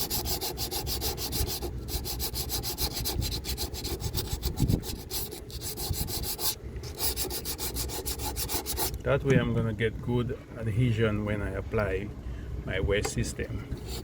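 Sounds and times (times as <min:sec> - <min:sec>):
hand sanding strokes: 0:00.0 - 0:09.0, 0:13.8 - 0:14.0.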